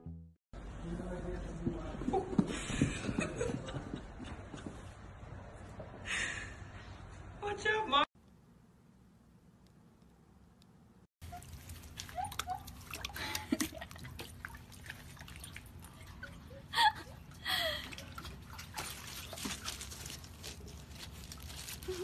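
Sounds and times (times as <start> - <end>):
water sloshing and dripping: 11.2 - 22.0.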